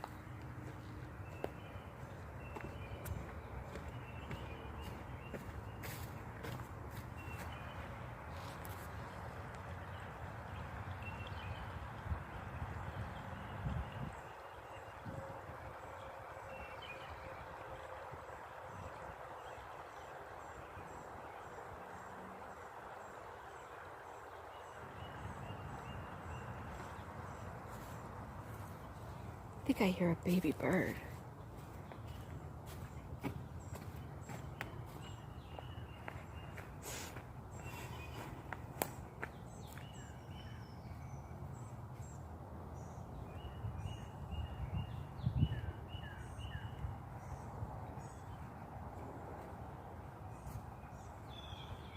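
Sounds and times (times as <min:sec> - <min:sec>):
lower bird chirping: 0:19.3 - 0:48.6, 0:50.2 - 0:51.9.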